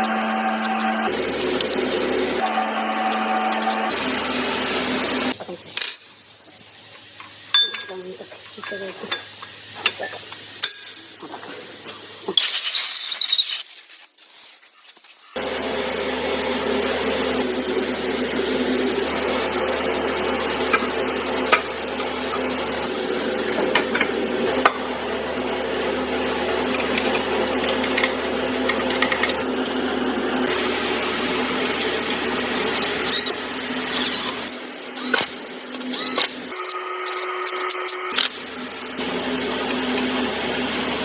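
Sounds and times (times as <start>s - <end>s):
machinery humming: 0.0s - 5.9s, 15.4s - 41.0s
tools tapping on metal: 5.7s - 12.0s.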